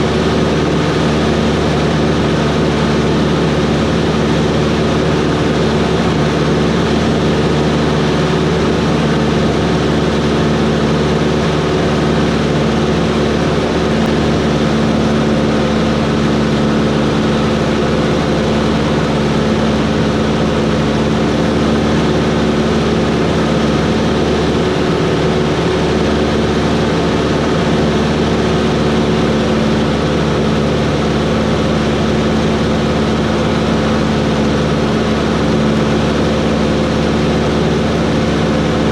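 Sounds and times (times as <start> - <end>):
airplane propeller engine drone: 0.0 - 38.9.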